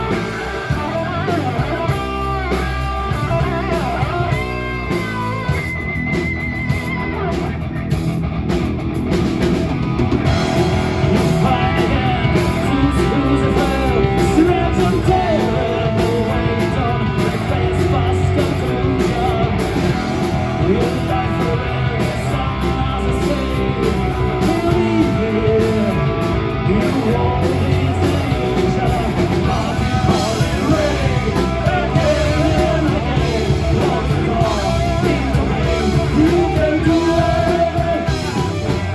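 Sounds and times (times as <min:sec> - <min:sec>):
drums: 0:00.0 - 0:38.9
electric guitar: 0:00.0 - 0:38.9
person singing: 0:10.6 - 0:38.9.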